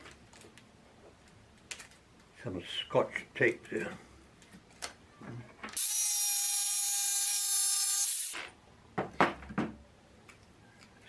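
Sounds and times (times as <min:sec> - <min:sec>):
jigsaw cutting with high whine: 0:05.8 - 0:08.4.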